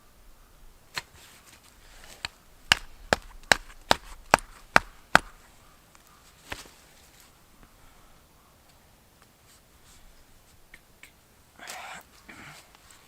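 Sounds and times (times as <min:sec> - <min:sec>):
axe chopping wood: 0:02.2 - 0:05.5.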